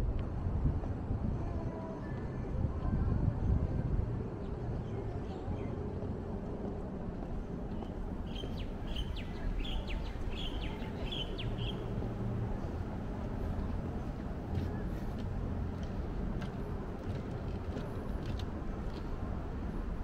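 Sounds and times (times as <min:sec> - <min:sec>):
small bird chirping: 0:07.8 - 0:11.9.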